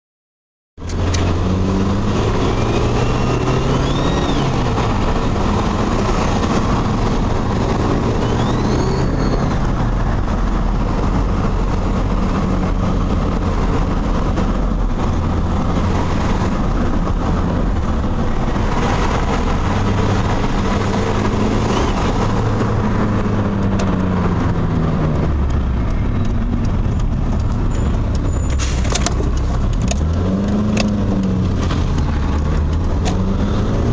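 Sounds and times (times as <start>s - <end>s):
car engine revving under load: 0.8s - 33.9s
high rising whistles: 2.2s - 4.7s, 7.9s - 9.6s.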